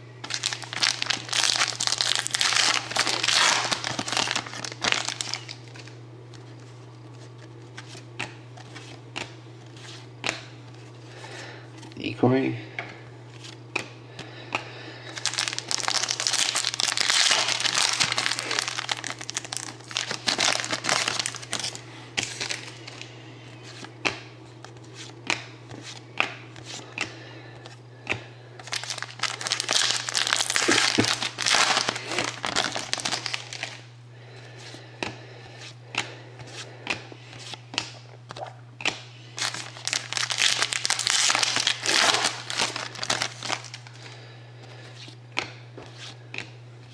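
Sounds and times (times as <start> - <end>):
wrapper tearing: 0.2 - 5.9, 15.1 - 23.0, 28.6 - 33.8, 39.4 - 44.0
wrappers crinkling: 0.2 - 6.6, 15.0 - 23.1, 28.6 - 33.8, 39.3 - 44.2
cards being handled: 0.2 - 11.0.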